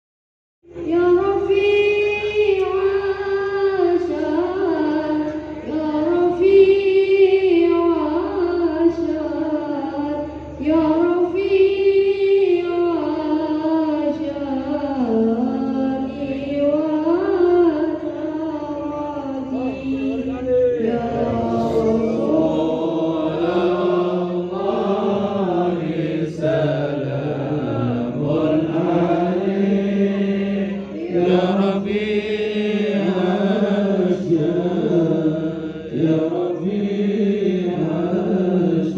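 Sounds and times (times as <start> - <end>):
man chanting: 18.9 - 38.9.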